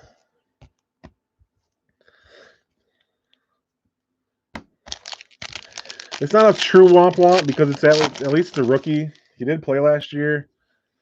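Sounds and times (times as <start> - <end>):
soft breath: 2.0 - 3.6.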